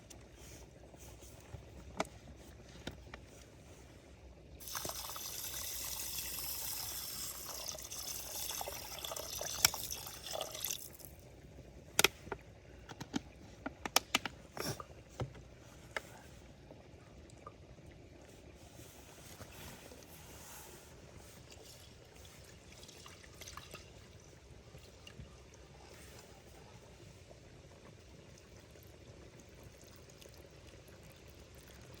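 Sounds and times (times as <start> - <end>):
liquid pouring: 4.6 - 11.3.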